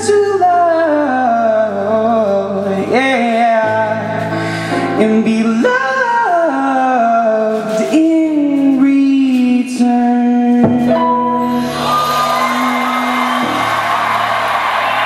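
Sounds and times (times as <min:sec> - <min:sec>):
man singing a long note: 0:08.7 - 0:14.2
audience applause and cheering: 0:11.4 - 0:15.0.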